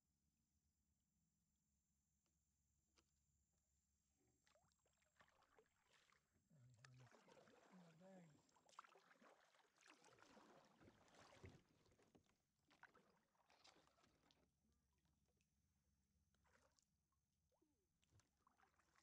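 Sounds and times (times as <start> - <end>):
paddle dipping and dripping in water: 4.1 - 19.0
small splashes and knocks: 4.4 - 19.0.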